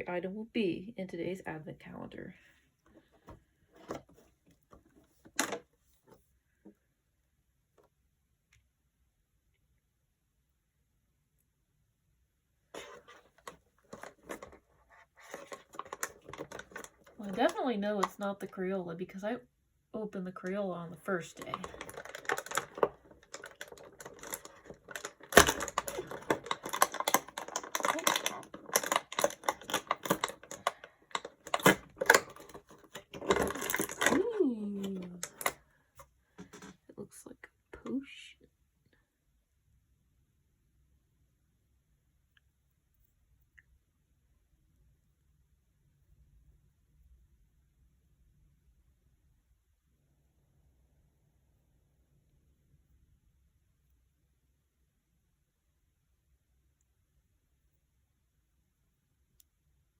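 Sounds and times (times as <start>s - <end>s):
cardboard clicks and crackles: 12.8s - 18.1s, 21.3s - 35.6s
plastic packaging crinkling: 12.8s - 18.1s, 21.3s - 35.6s.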